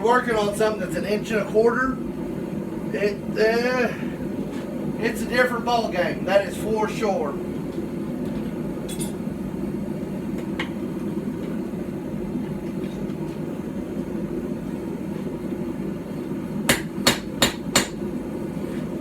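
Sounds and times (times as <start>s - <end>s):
steady low hum: 0.0s - 19.0s
hand hammer striking metal: 16.7s - 18.0s.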